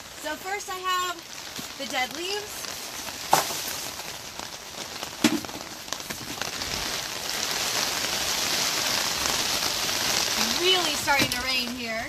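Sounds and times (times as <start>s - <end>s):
rain on plastic cover: 0.0s - 12.0s
plastic bucket knocking on barrel: 5.2s - 5.6s.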